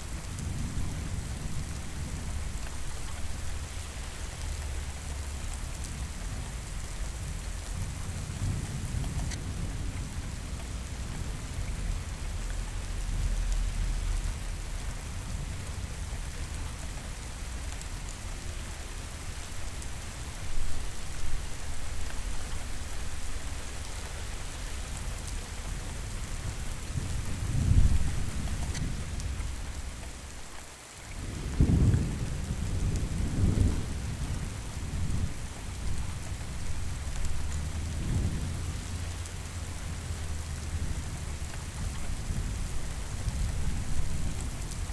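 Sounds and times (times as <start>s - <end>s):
steady rain: 0.0s - 44.9s
thunder rumbling: 26.1s - 29.9s, 31.2s - 44.9s.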